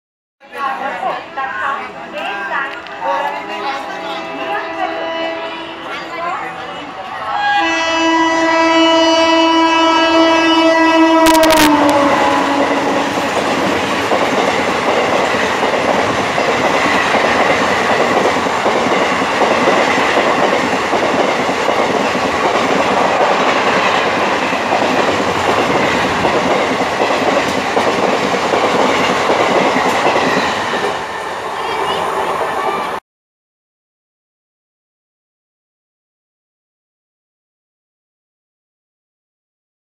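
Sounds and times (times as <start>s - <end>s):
locomotive air horn blast: 3.9s - 5.9s, 7.4s - 13.2s
train wheels clattering on rails: 12.5s - 33.0s.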